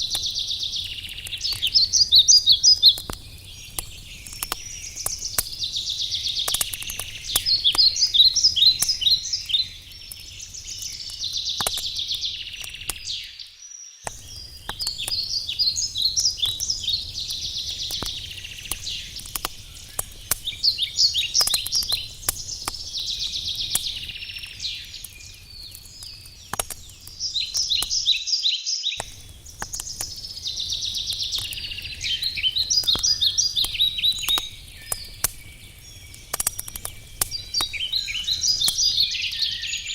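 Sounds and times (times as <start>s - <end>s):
campfire crackling with pops: 0.0s - 13.3s, 14.0s - 28.2s, 29.0s - 39.9s
songbirds singing trills: 0.0s - 39.9s.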